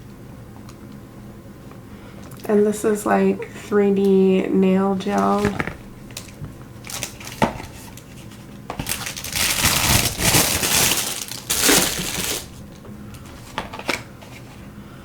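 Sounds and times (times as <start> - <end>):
packaging crinkling: 5.1 - 14.1.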